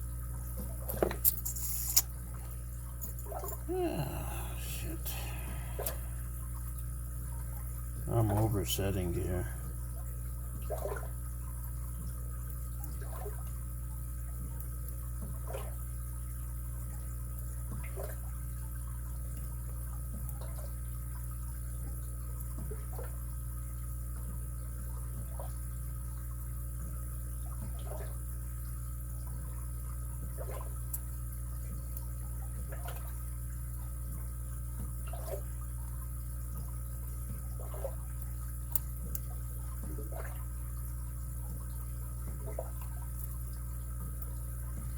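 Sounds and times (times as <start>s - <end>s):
low hum: 0.9s - 10.3s
lock picks scraping padlock pins: 1.2s - 2.0s.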